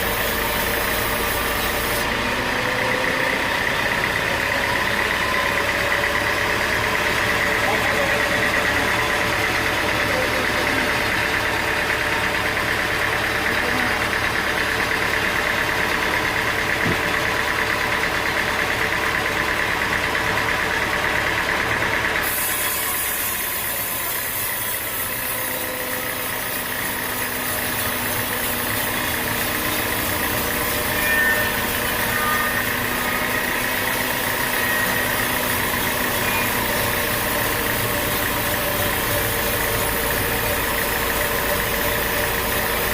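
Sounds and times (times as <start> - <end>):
sawmill machinery running: 0.0 - 42.9.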